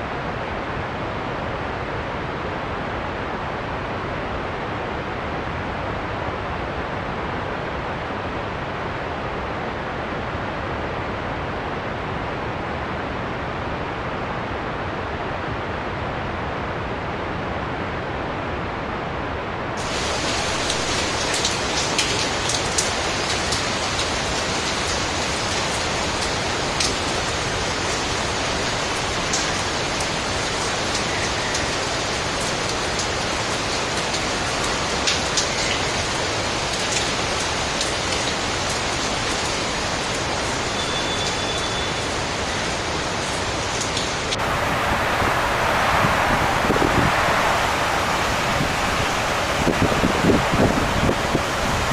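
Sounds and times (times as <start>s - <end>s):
raindrops ticking: 19.8s - 44.4s
heavy rain rushing: 19.8s - 51.9s.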